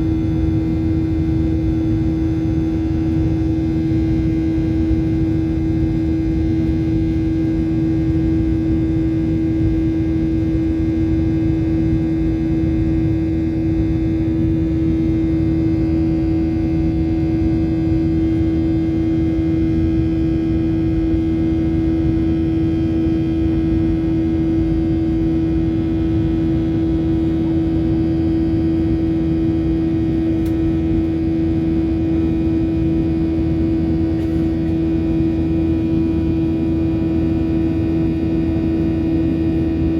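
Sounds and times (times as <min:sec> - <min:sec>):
jet engines droning: 0:12.2 - 0:39.9.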